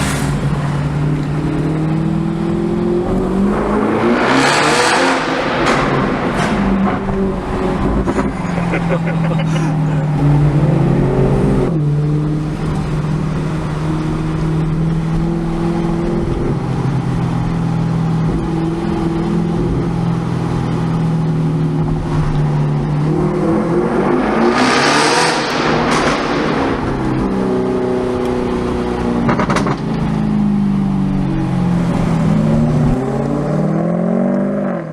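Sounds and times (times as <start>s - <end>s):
loud rush of noise: 0.0s - 2.3s
car engine in tunnel: 0.0s - 34.9s.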